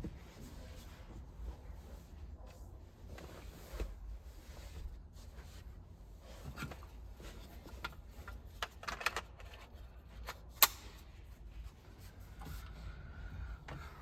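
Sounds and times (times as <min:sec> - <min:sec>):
clicks and knocks of parts handled: 0:06.4 - 0:11.1.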